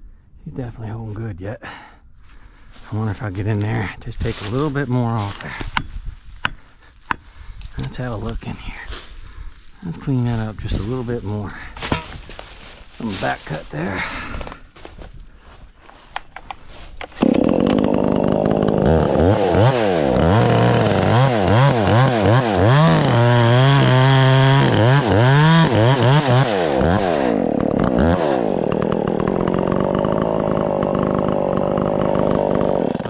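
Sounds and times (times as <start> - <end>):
chainsaw cutting wood: 11.8 - 33.0.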